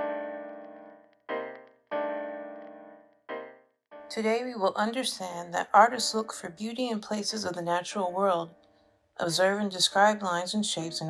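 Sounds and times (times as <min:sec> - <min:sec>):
keyboard chords: 0:00.0 - 0:04.2.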